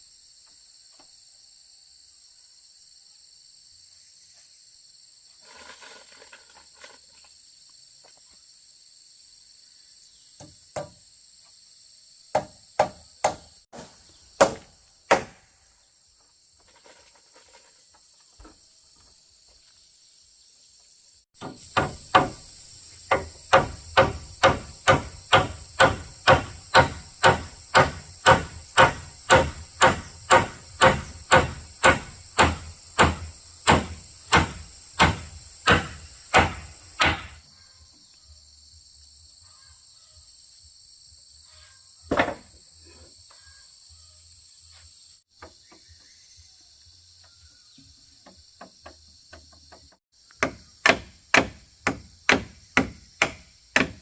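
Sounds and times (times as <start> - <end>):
insects buzzing: 0.0 - 54.0
hammer striking wood: 10.4 - 11.0, 12.3 - 15.4, 21.4 - 22.5, 23.1 - 37.4, 50.4 - 54.0.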